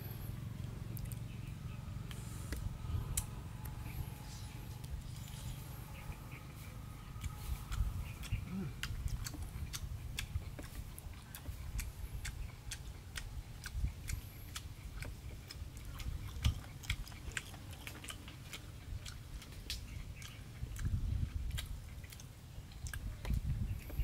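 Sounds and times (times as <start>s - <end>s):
low rumble: 0.0s - 14.3s
person chewing food: 2.0s - 24.0s.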